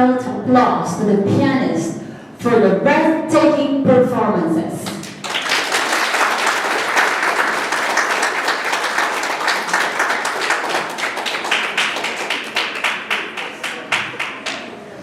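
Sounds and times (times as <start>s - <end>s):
audience applauding: 5.0s - 14.8s.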